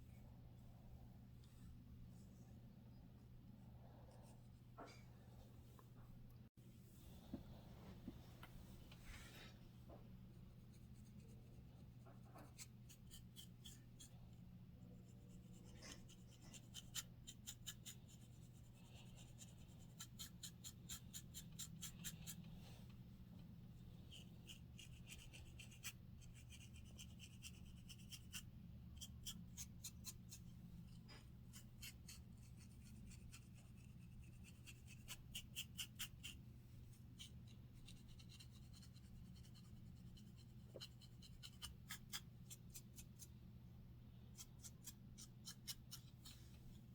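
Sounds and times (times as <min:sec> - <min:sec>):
fingers scratching scalp through hair: 0:15.0 - 0:22.5, 0:24.1 - 0:30.5, 0:31.5 - 0:43.3, 0:44.4 - 0:46.6.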